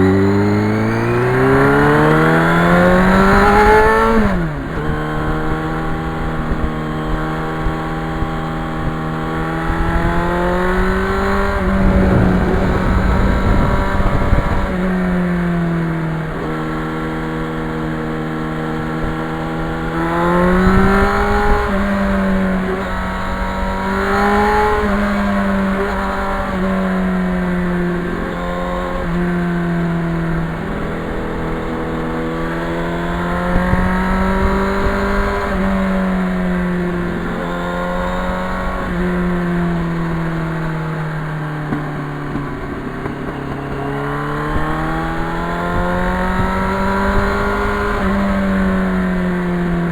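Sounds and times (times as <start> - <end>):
wind rumble on microphone: 0.0 - 17.0, 18.8 - 43.2, 44.4 - 49.9
motorcycle engine revving: 0.0 - 49.9.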